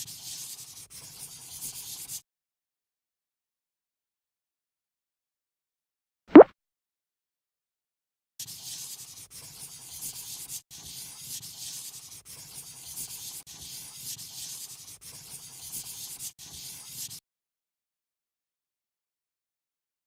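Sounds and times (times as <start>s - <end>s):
coloring tool scratching paper: 0.0s - 2.2s, 8.4s - 17.2s.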